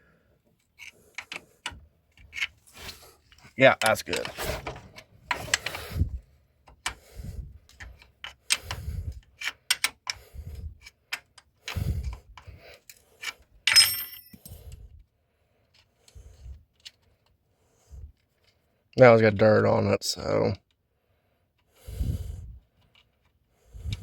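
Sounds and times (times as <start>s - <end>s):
metal tools clinking and knocking: 13.7s - 14.6s.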